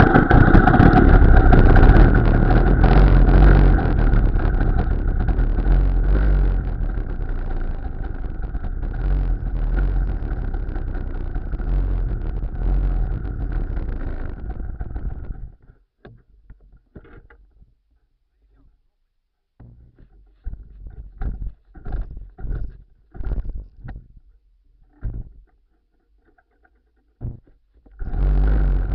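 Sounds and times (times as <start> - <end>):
two-stroke engine running: 0.0 - 15.5, 28.1 - 28.9.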